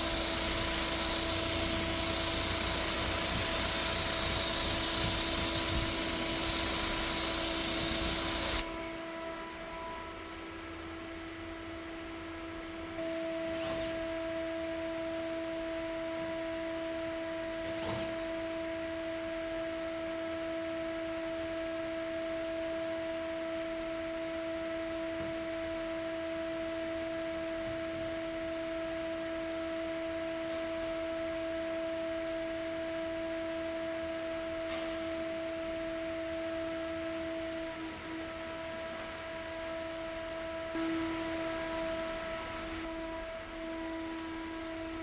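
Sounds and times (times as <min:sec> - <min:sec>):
steady hum: 0:00.0 - 0:13.4.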